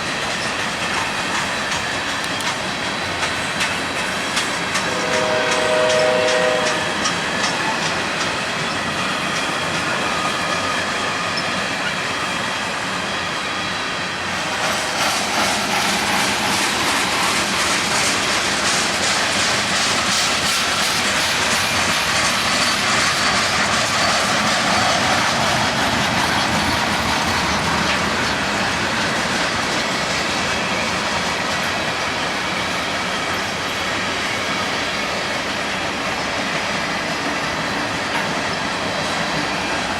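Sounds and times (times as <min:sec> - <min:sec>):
train wheels clicking over rail joints: 0:00.0 - 0:39.9
train horn blast: 0:04.8 - 0:07.1.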